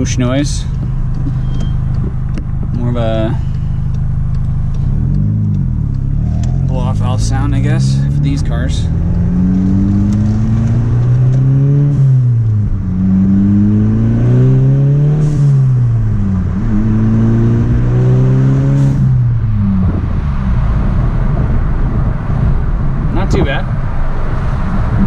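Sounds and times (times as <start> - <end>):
car engine revving from inside: 0.0 - 23.4.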